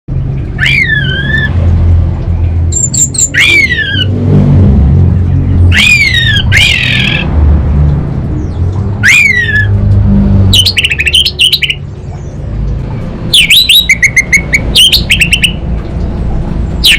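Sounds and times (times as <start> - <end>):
loud low rumble: 0.1 - 11.1
thrush calling: 0.5 - 1.6, 2.7 - 4.2, 5.6 - 7.4, 9.0 - 9.8, 10.5 - 11.9, 13.3 - 15.6.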